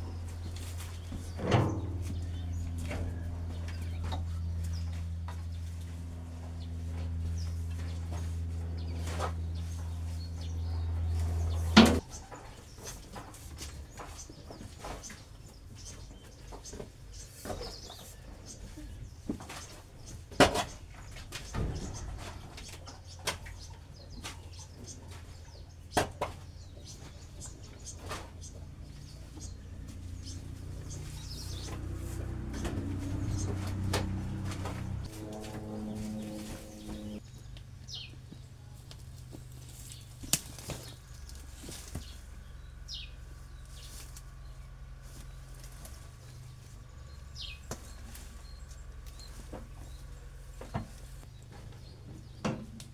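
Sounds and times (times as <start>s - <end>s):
low steady hum: 0.0s - 12.1s, 28.6s - 51.8s
birds chirping faintly: 0.0s - 20.3s, 21.0s - 52.8s
knocks and thuds: 0.4s - 12.0s, 21.4s - 22.9s, 30.0s - 37.2s
sharp knocks and clicks: 1.1s - 5.7s
bird chirping: 26.6s - 38.4s, 40.8s - 45.6s, 46.2s - 50.7s.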